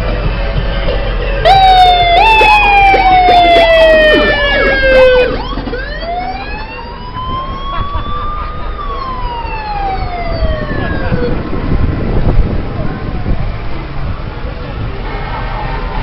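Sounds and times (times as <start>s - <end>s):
fire truck sirens wailing: 0.0s - 16.0s
siren warbling quickly: 1.4s - 11.6s.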